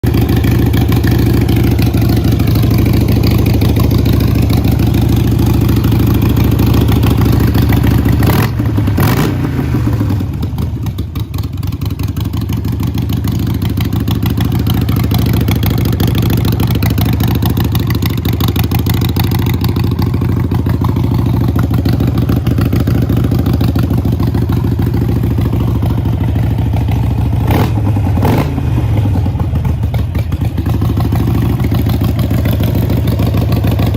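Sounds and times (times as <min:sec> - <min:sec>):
motorcycle engine idling: 0:00.0 - 0:33.9
throttle blips revving engine: 0:08.2 - 0:10.6, 0:27.4 - 0:28.7.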